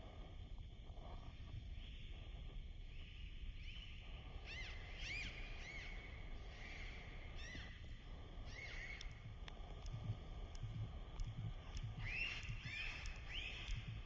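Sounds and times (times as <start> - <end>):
low background rumble: 0.0 - 14.0
bird chirping: 11.8 - 14.0.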